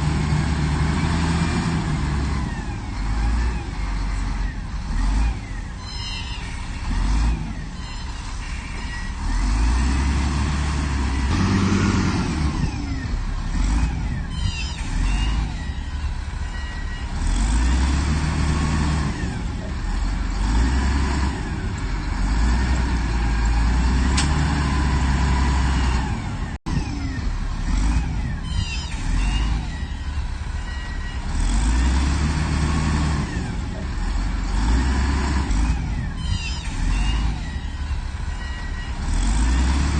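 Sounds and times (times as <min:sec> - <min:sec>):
diesel engine rumbling under load: 0:00.0 - 0:39.9
machinery squeaks and creaks: 0:02.9 - 0:10.0, 0:13.0 - 0:33.1, 0:33.8 - 0:39.9.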